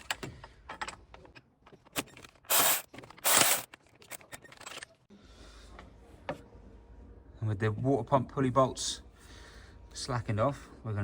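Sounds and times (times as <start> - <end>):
wrench scraping strokes: 2.5 - 3.7.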